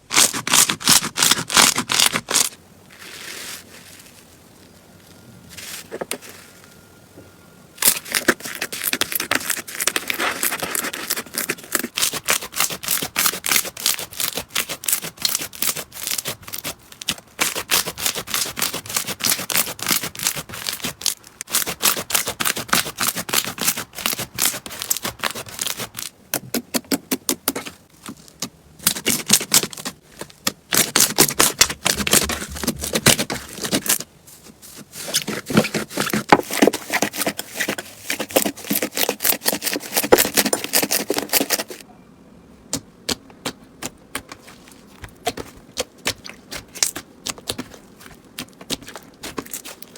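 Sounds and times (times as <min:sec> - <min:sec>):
slime crackling and popping: 0:43.8 - 0:49.9.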